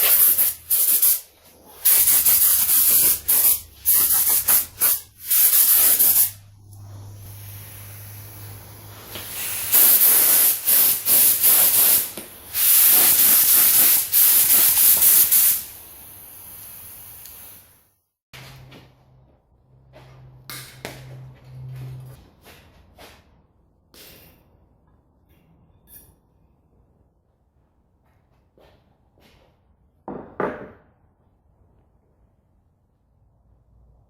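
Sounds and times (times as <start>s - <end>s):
pressurised spray hissing: 0.0s - 17.8s.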